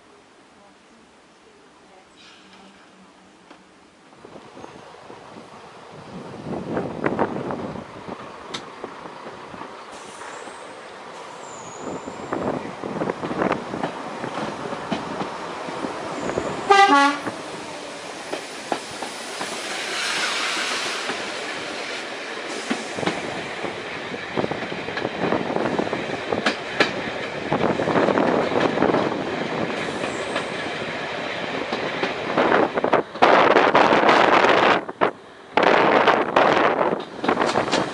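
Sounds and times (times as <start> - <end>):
train running: 2.2 - 37.9
train horn blast: 16.7 - 17.3.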